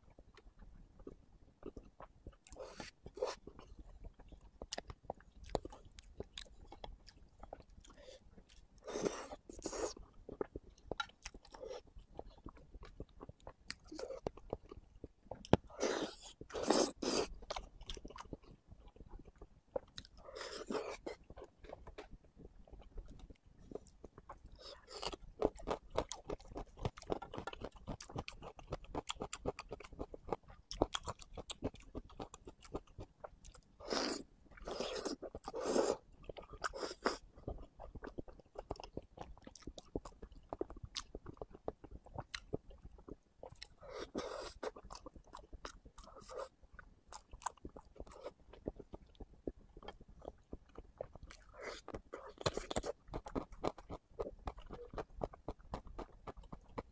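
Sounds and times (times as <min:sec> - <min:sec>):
wet mouth chewing sounds: 0:00.1 - 0:56.9.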